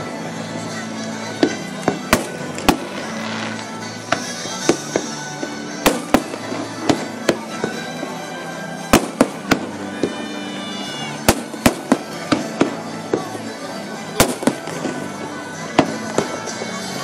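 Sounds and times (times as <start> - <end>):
music playing: 0.0 - 17.0
fireworks bursting with bangs: 1.2 - 17.0.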